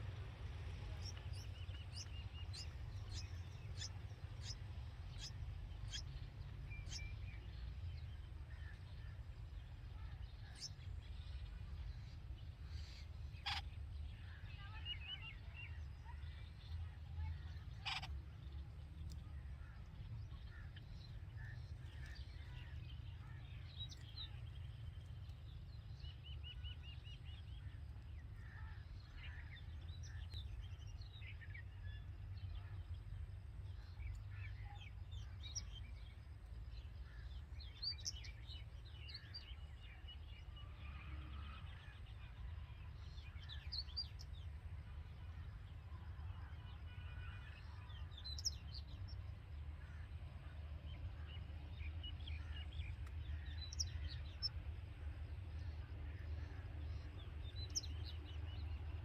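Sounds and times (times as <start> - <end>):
steady low rumble: 0.0 - 14.4
birds chirping and trilling: 0.0 - 18.7, 51.0 - 54.6.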